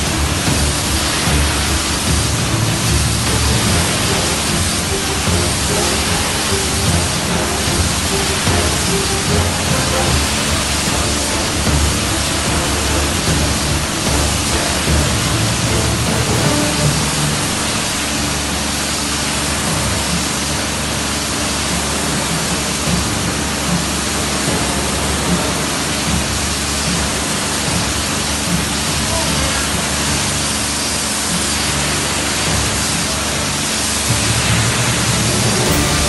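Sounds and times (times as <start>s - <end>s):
pressure washer spraying: 0.0s - 18.7s
background music: 0.0s - 36.0s.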